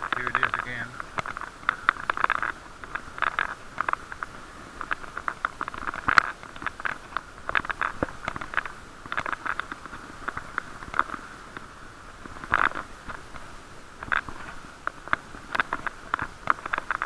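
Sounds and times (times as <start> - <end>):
camera rattling in its case: 0.0 - 17.0.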